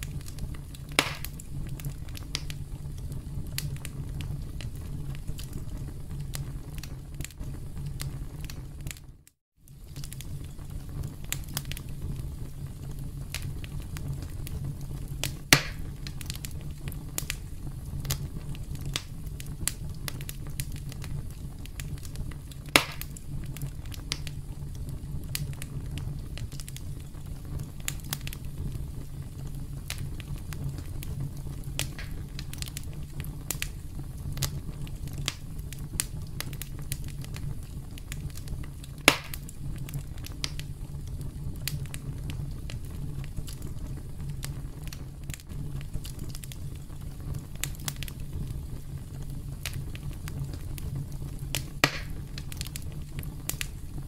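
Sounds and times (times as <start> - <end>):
campfire crackling: 0.0 - 54.0
loud sharp pops: 0.9 - 1.4, 15.5 - 15.9, 22.7 - 23.2, 31.8 - 32.4, 39.0 - 39.4, 51.7 - 52.5.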